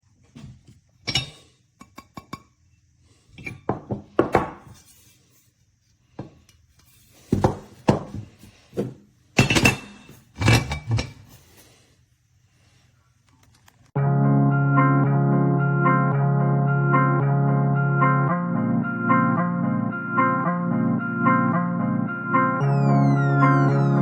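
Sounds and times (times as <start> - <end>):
ceramic bowls and metal stand clinking: 1.0 - 2.4, 9.4 - 11.2.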